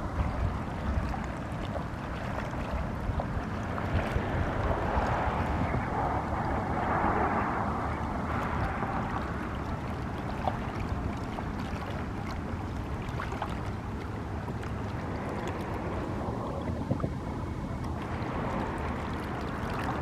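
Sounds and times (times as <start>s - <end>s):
lapping water: 0.0s - 20.0s.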